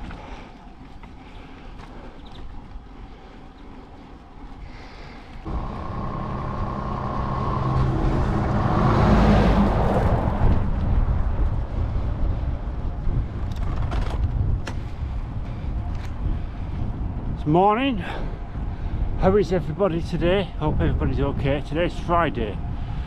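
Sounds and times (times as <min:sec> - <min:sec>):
vehicle passing on road: 0:05.4 - 0:13.4.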